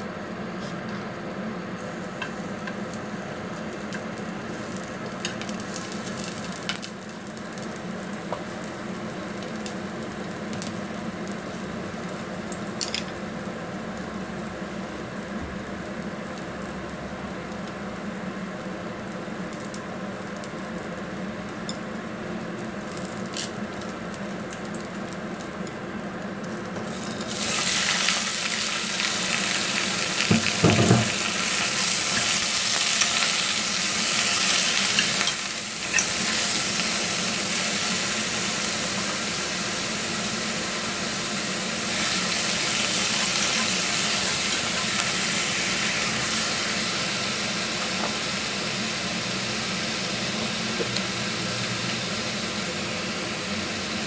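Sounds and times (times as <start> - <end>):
food sizzling in hot oil: 1.2 - 54.0
knock on a pot: 30.3 - 31.2.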